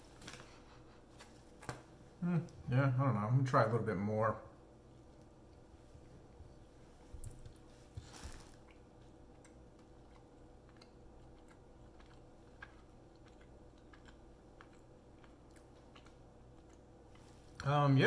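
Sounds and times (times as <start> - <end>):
chewing hard cheese: 7.2 - 17.7.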